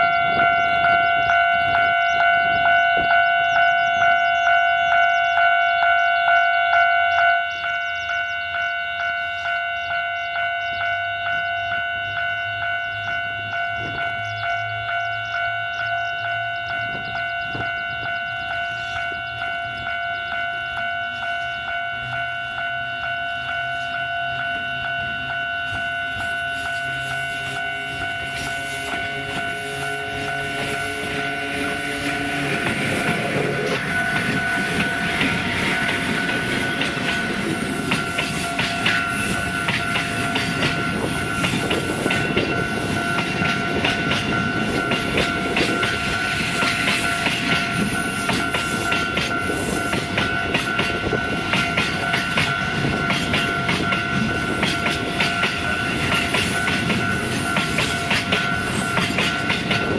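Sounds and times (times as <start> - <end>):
locomotive motor hum: 9.4 - 59.9
steady high whine: 10.0 - 59.9
wheels clattering over rail joints: 28.9 - 59.9.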